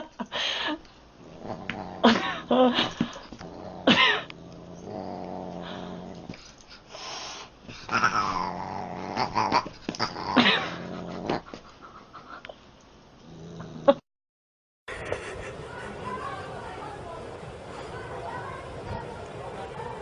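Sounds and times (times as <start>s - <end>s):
cat growling: 1.2s - 2.7s, 3.4s - 6.4s, 7.8s - 11.6s.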